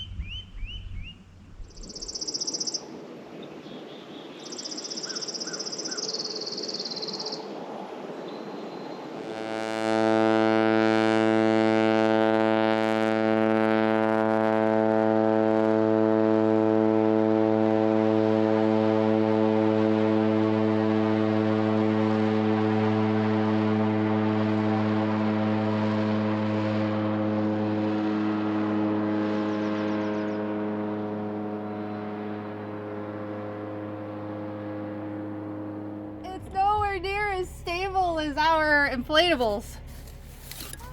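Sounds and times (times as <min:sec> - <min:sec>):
steady low drone: 0:09.1 - 0:40.9.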